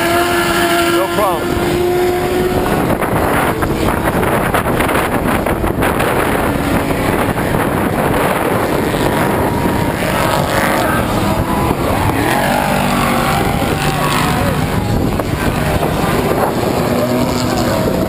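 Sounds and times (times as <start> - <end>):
race truck engines running hard: 0.0 - 18.0
wind on microphone: 0.0 - 18.0.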